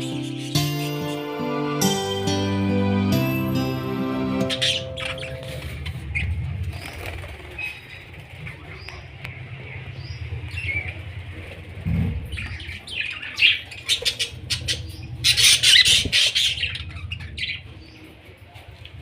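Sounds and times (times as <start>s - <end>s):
budgerigars squawking: 4.4s - 5.7s, 12.3s - 17.6s.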